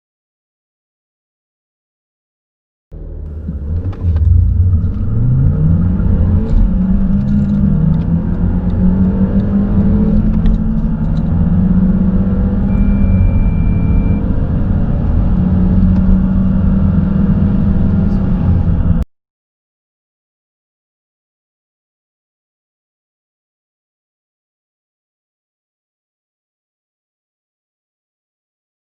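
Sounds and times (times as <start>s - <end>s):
car engine accelerating hard: 2.9s - 19.0s.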